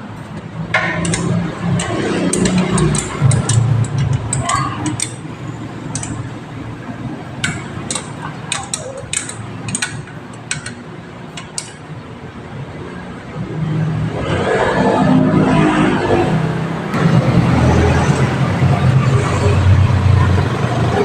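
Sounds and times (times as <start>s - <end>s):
sharp clicks and clinks: 0.7s - 11.9s.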